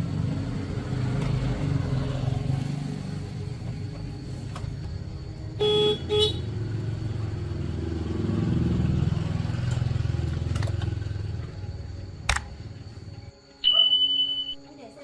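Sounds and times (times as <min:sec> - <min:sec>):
sharp click: 0:12.3 - 0:12.5
horn beeps: 0:13.6 - 0:14.6.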